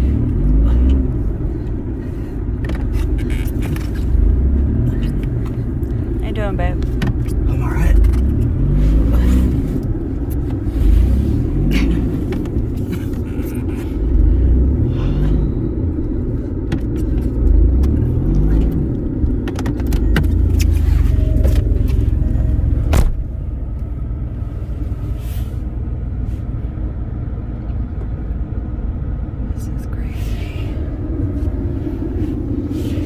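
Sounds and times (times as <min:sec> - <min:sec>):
car engine revving: 0:00.0 - 0:33.0
heavy low rumble: 0:00.0 - 0:33.0.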